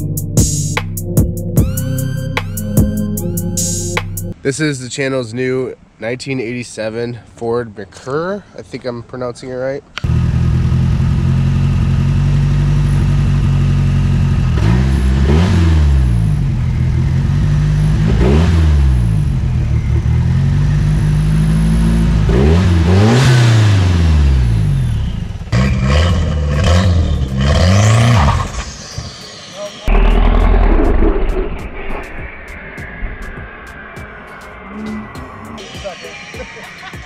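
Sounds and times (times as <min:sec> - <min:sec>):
car engine idling and revving: 0:10.0 - 0:36.0.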